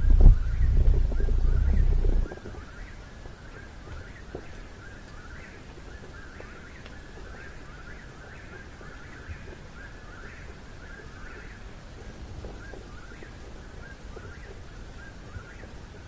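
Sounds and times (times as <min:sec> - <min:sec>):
low steady hum: 0:00.0 - 0:02.7
birds chirping: 0:00.0 - 0:11.8.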